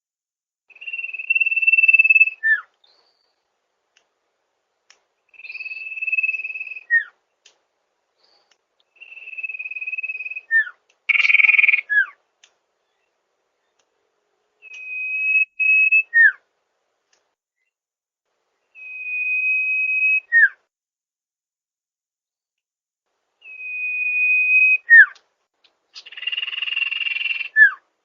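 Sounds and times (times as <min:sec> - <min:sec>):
bird whistling song: 0:00.7 - 0:03.5, 0:05.3 - 0:07.2, 0:08.2 - 0:12.2, 0:14.6 - 0:16.5, 0:18.6 - 0:20.7, 0:23.4 - 0:25.2, 0:26.0 - 0:27.8.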